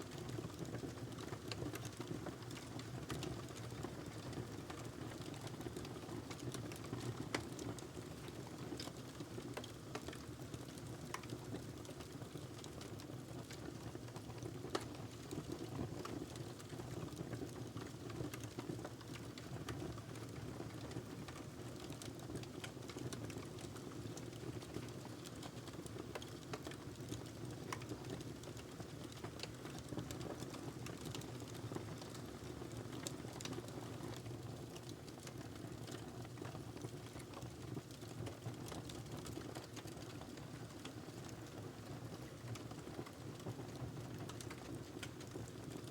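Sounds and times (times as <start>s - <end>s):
wood fire crackling: 8.8s - 41.6s, 42.2s - 45.9s.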